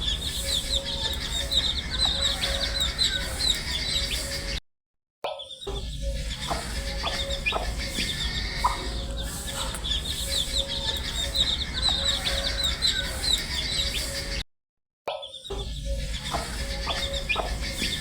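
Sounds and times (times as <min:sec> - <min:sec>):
steady low hum: 0:00.0 - 0:04.5, 0:05.8 - 0:14.4
baby chicks peeping: 0:00.0 - 0:04.6, 0:05.6 - 0:14.4, 0:15.4 - 0:18.0.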